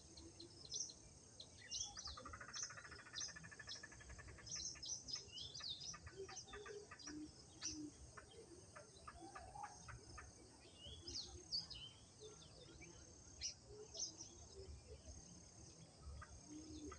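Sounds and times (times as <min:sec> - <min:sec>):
birds chirping and calling: 0:01.7 - 0:14.4.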